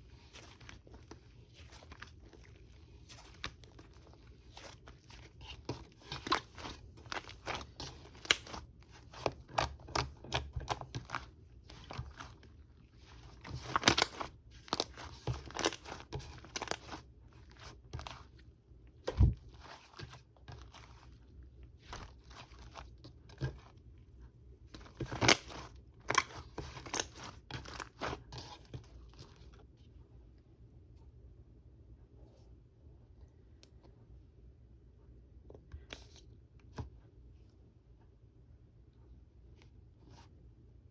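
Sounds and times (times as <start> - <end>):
slime popping and crackling: 6.1 - 12.2, 13.5 - 17.0.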